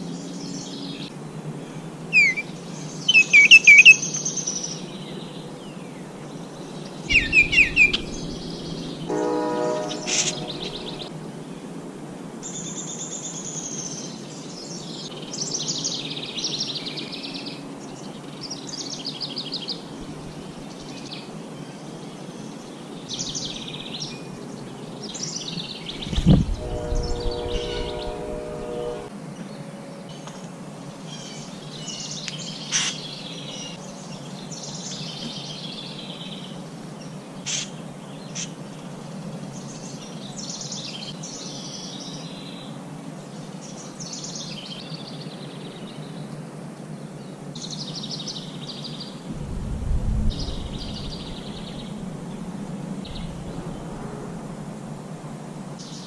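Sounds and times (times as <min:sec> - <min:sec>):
songbirds singing and calling: 0:00.0 - 0:11.7, 0:12.4 - 0:49.3, 0:50.1 - 0:54.1
low held call: 0:07.1 - 0:11.1.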